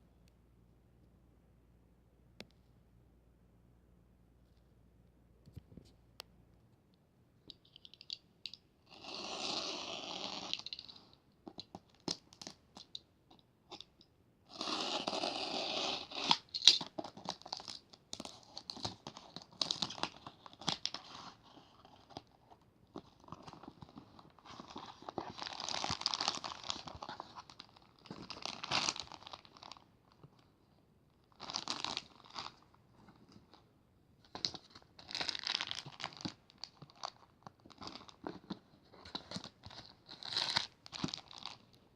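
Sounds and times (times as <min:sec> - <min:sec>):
packaging crinkling and tearing: 0:23.0 - 0:29.8, 0:31.3 - 0:32.7, 0:34.3 - 0:41.8.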